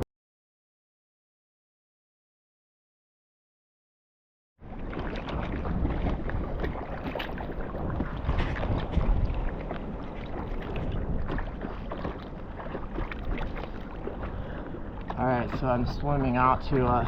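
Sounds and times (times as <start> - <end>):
water splashing from swimming: 4.6 - 17.0.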